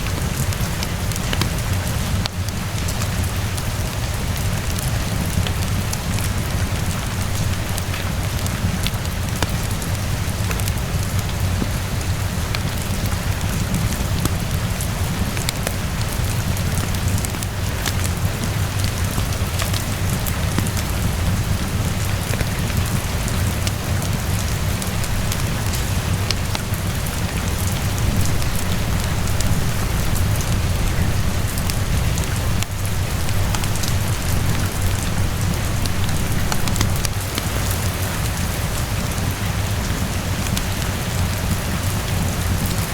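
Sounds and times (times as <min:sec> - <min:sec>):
fireplace crackles: 0:00.0 - 0:42.9
rainfall: 0:00.0 - 0:42.9
low rumble: 0:05.0 - 0:38.7.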